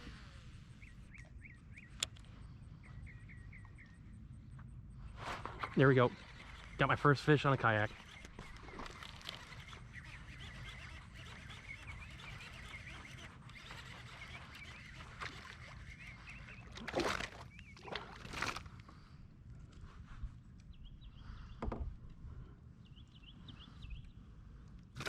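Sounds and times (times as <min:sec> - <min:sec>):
faint bird chirps: 0:00.3 - 0:18.2
water splashes: 0:16.6 - 0:18.7.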